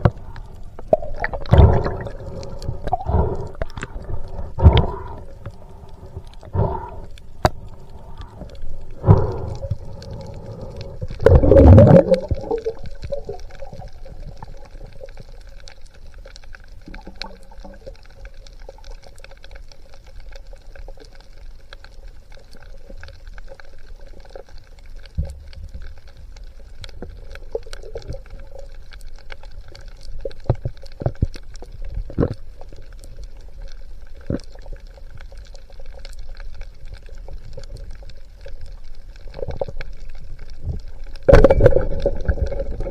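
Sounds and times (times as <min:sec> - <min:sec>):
low underwater hum: 0:00.0 - 0:42.9
underwater gurgling gush: 0:00.0 - 0:42.9.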